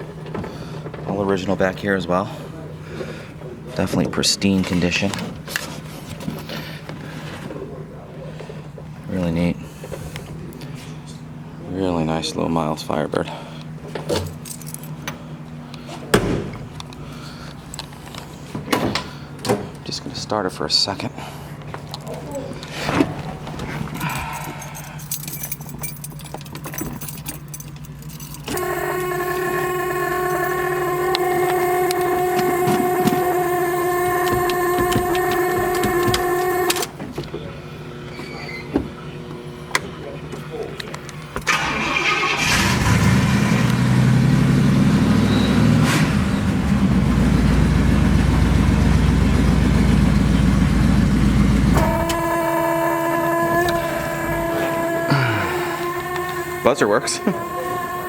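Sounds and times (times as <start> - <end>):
car keys jingling: 14.1 - 18.4, 23.1 - 37.0, 41.0 - 43.3, 51.6 - 58.0
car engine starting: 22.7 - 37.0, 41.4 - 58.0
dashboard warning buzzer: 28.5 - 37.0, 51.1 - 58.0.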